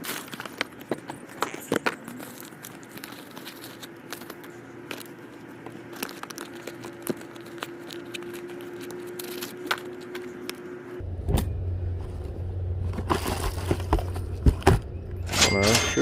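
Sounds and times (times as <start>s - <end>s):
plastic and bags crinkling: 0.0s - 10.8s, 12.8s - 14.7s.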